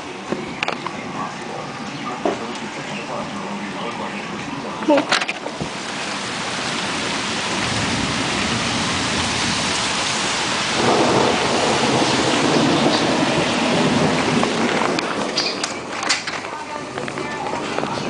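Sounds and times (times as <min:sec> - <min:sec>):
heavy rain: 0:00.0 - 0:18.0
thunder rolling: 0:05.4 - 0:18.0.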